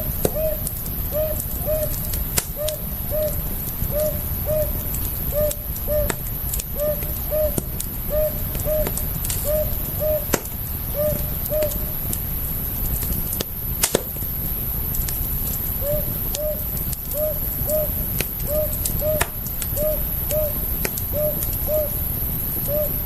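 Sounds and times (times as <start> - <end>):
campfire crackling and popping: 0.0 - 23.0
bird calling in paired notes: 0.3 - 10.3, 15.8 - 22.0.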